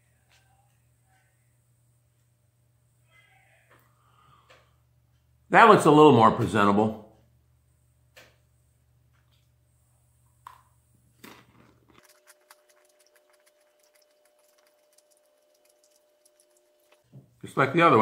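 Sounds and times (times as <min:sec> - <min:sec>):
chewing crunchy food: 0:11.1 - 0:17.0.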